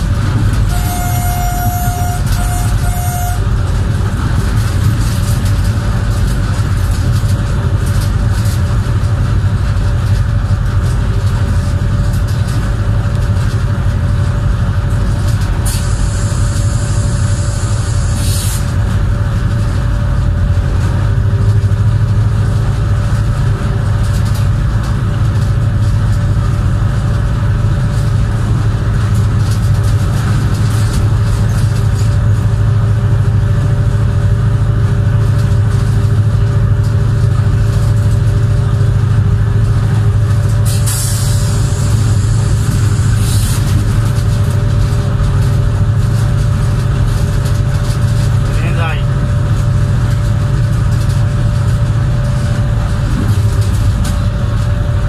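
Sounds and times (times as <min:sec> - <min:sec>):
locomotive engine rumble: 0:00.0 - 0:55.0
wheel and rail noise: 0:00.0 - 0:55.0
wind: 0:00.0 - 0:55.0
short high tone: 0:00.7 - 0:03.4.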